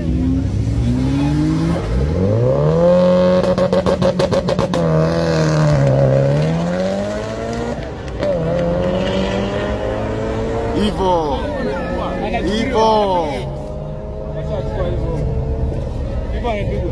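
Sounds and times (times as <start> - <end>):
car engine revving with crackle: 0.6 - 10.7.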